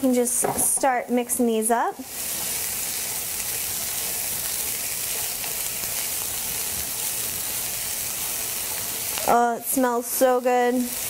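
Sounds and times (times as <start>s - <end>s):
onions sizzling in frying pan: 0.0s - 11.0s.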